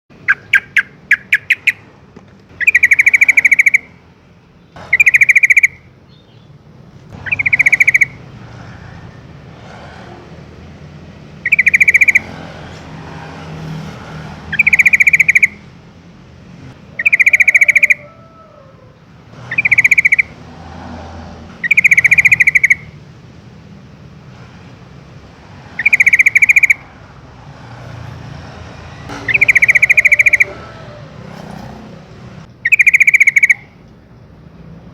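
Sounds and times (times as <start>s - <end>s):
bird chattering call: 0.2s - 1.9s, 2.6s - 3.9s, 4.8s - 5.9s, 7.2s - 8.2s, 11.4s - 12.4s, 14.5s - 15.6s, 16.9s - 18.8s, 19.5s - 20.4s, 21.6s - 22.9s, 25.8s - 26.9s, 29.1s - 31.8s, 32.5s - 33.8s.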